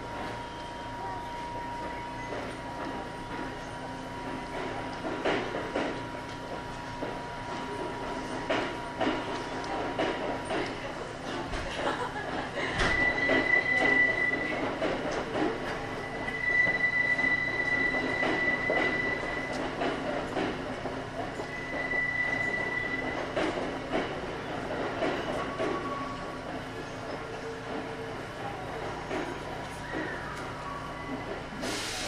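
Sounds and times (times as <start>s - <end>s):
train wheels rumbling on rail: 0.0s - 32.0s
high wheel squeal: 16.0s - 19.6s, 21.5s - 23.3s.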